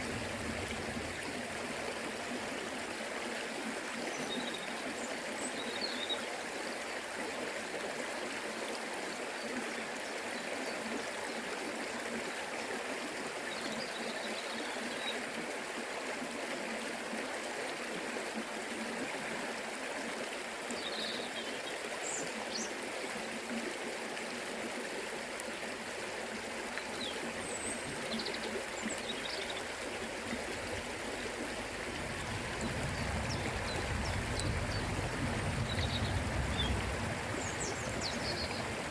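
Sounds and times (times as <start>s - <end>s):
river water rushing: 14.8s - 38.9s
deep rumble: 31.9s - 38.3s.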